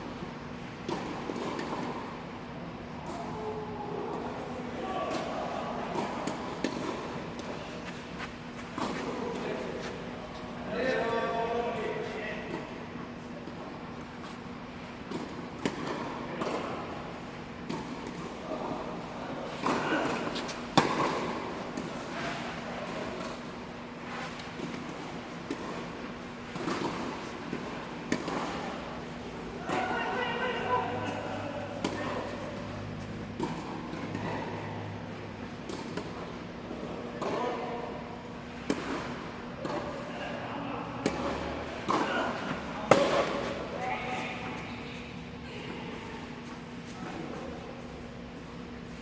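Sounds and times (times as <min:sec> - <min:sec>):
tennis ball bouncing on court: 0:15.1 - 0:16.7, 0:19.6 - 0:21.9, 0:24.6 - 0:28.7, 0:31.8 - 0:32.4, 0:33.3 - 0:34.4, 0:35.4 - 0:36.4, 0:42.9 - 0:43.6
tennis ball struck by racket: 0:19.6 - 0:21.9, 0:42.9 - 0:43.5.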